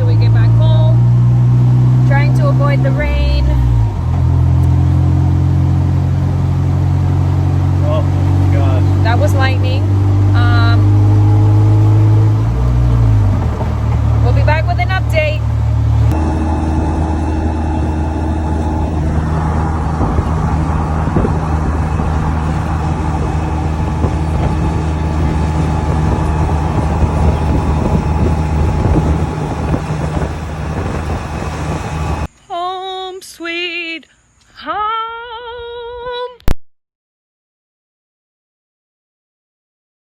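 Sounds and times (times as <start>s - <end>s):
vehicle engine drone: 0.0s - 32.3s
road rumble: 0.0s - 32.4s
person singing a melody: 32.5s - 36.5s.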